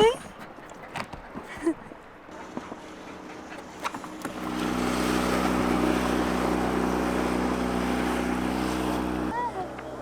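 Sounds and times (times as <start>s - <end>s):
boat outboard motor running: 2.5s - 10.0s.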